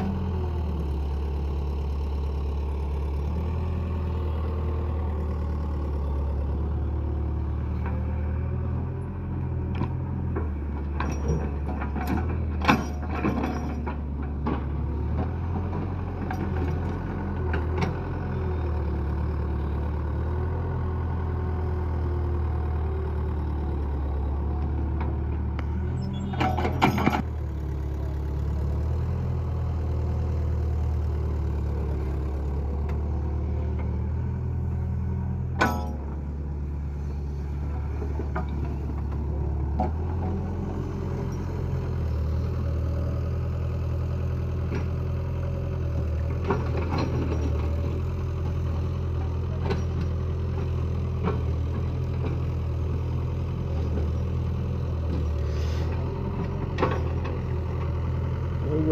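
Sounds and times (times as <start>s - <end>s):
diesel engine running: 0.0s - 58.9s
sharp metallic knocks: 35.6s - 36.2s.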